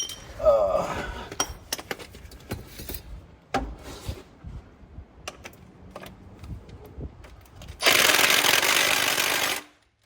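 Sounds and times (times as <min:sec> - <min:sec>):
metal tools clinking and knocking: 0:00.0 - 0:00.4.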